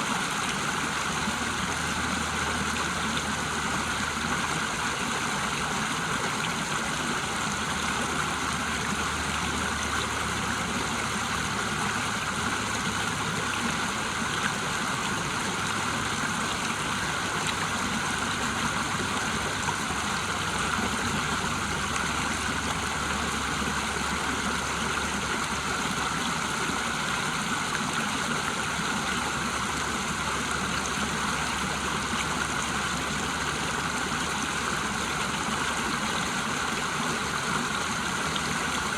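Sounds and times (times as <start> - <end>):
water rushing over waterfall: 0.0 - 38.9.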